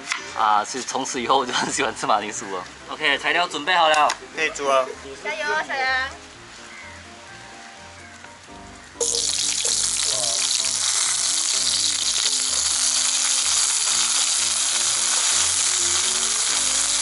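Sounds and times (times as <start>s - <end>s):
potato slices sizzling in oil: 9.0s - 17.0s.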